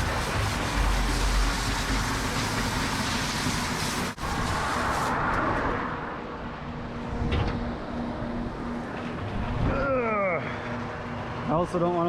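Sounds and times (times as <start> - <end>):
road traffic passing: 0.0 - 9.6.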